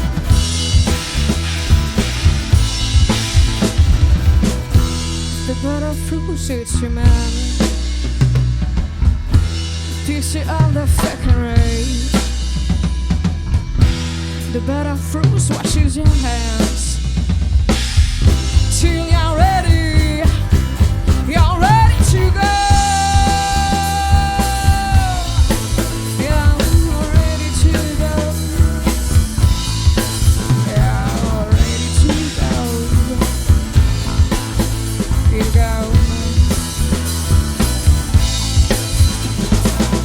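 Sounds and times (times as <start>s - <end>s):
drum kit beat: 0.0s - 5.9s, 7.0s - 40.0s
sliding lead melody: 0.0s - 10.1s
rock band playing: 0.0s - 40.0s.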